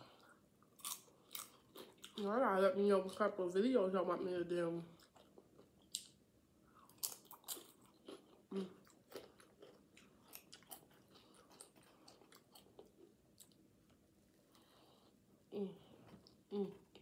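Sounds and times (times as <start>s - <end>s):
tortilla chip crunching: 0.7s - 2.2s, 6.9s - 13.6s.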